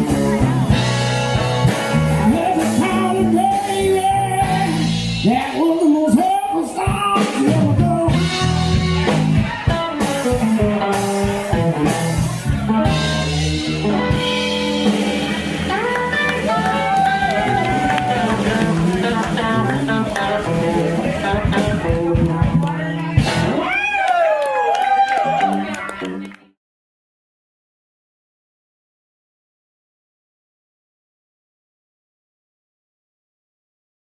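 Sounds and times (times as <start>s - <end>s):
electric guitar bending notes: 0.0s - 5.4s, 6.8s - 23.7s
blues band playing: 0.0s - 26.4s.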